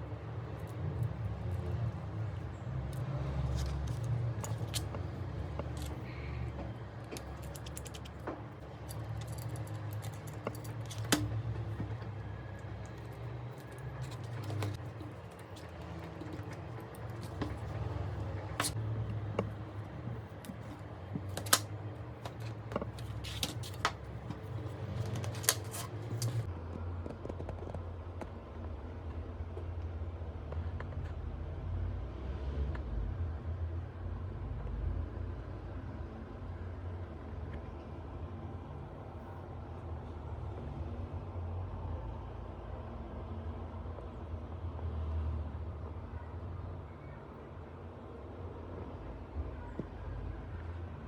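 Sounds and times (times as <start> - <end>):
small tools clicking and tapping: 0.5 - 26.5.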